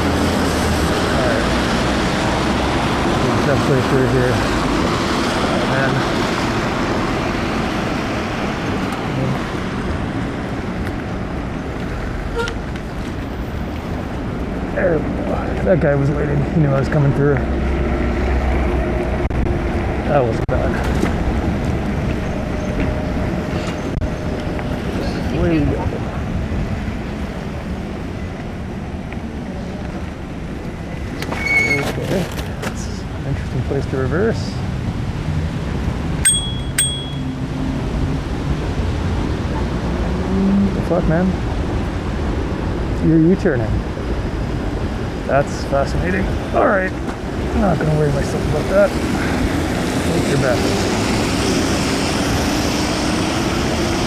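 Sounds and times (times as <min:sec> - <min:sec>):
road noise: 0:00.0 - 0:54.0
rushing wind: 0:00.0 - 0:54.0
short sharp toot: 0:12.3 - 0:12.6.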